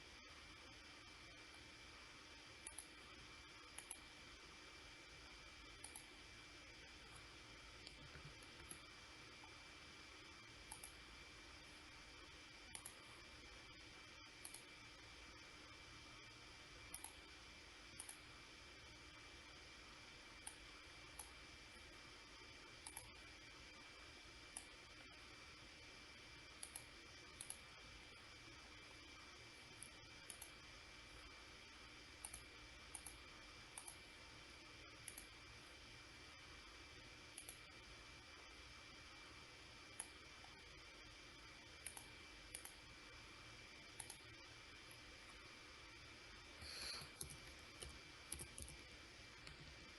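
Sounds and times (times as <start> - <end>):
faint high whine: 0.0 - 49.9
faint hiss and hum: 0.0 - 49.9
computer mouse clicks: 2.6 - 3.1, 3.7 - 4.2, 5.8 - 6.2, 7.8 - 9.6, 10.6 - 11.0, 12.7 - 13.2, 14.4 - 14.8, 16.9 - 17.3, 17.9 - 18.3, 20.4 - 21.4, 22.8 - 23.3, 24.5 - 25.2, 26.5 - 27.7, 29.7 - 30.6, 32.1 - 34.1, 35.0 - 35.4, 37.3 - 37.8, 39.9 - 40.6, 41.7 - 42.8, 43.8 - 45.1, 46.6 - 49.8.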